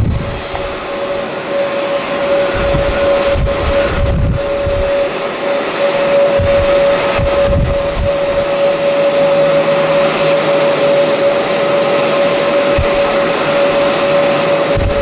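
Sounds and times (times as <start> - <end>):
wind buffeting microphone: 0.0 - 5.2, 6.0 - 10.0, 12.4 - 15.0
jet engines whining: 0.0 - 15.0.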